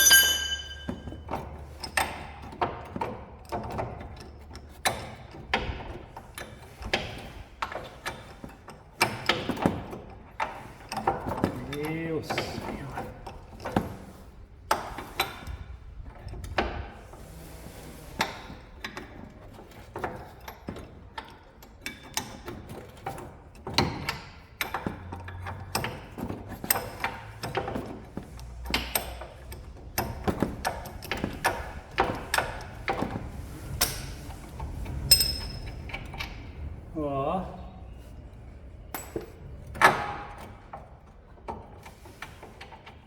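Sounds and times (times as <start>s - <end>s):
sharp ringing clink: 0.0s - 1.1s
metal tools clicking and tapping: 0.0s - 2.0s.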